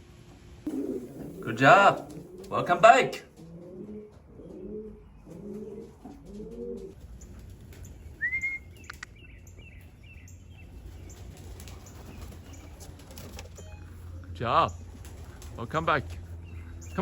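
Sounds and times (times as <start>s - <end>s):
pigeons cooing: 0.6s - 16.9s
sharp clicks: 8.8s - 9.1s.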